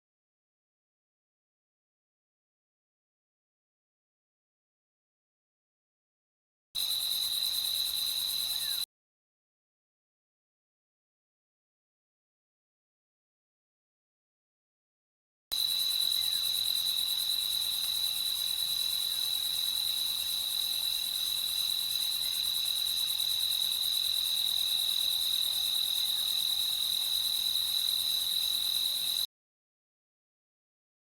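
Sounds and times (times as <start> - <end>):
crickets trilling: 6.8 - 8.8, 15.6 - 29.3.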